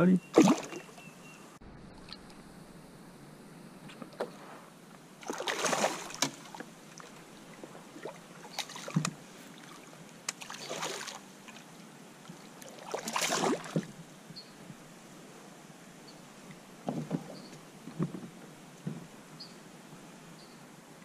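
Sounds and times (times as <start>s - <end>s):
water splashing around kayak: 0.3s - 1.1s, 5.1s - 14.1s.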